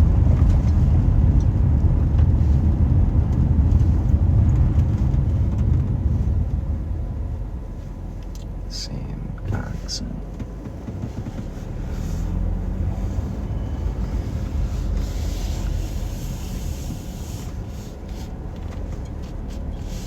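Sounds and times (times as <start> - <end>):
low rumble inside a car: 0.0 - 20.0.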